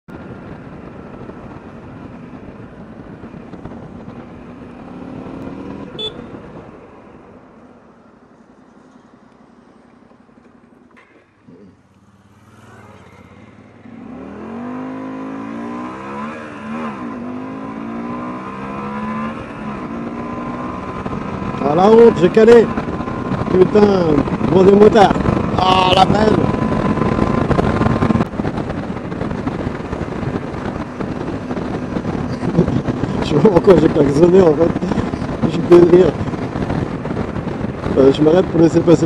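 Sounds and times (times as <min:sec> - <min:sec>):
motorcycle engine revving and idling: 0:09.7 - 0:39.0.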